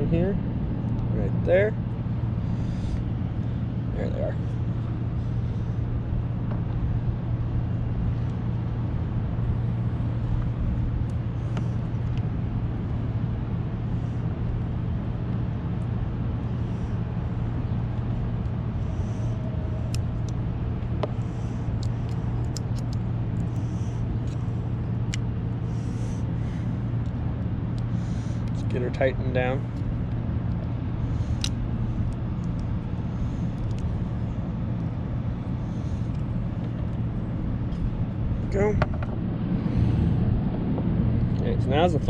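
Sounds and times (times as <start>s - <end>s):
steady low hum: 0.0s - 42.0s
small parts clicking and tapping: 21.8s - 23.6s.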